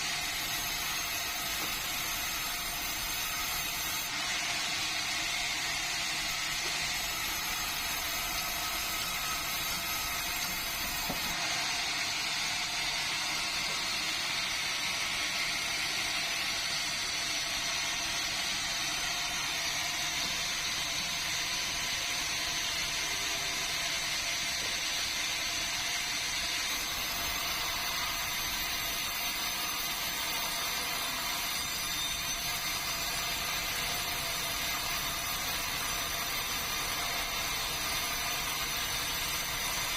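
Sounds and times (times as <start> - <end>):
sawmill machinery sawing: 0.0 - 39.9.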